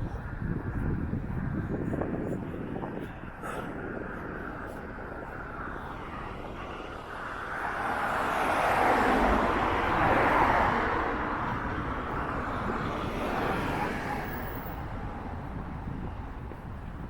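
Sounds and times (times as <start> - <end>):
vehicle passing by: 5.4 - 16.1.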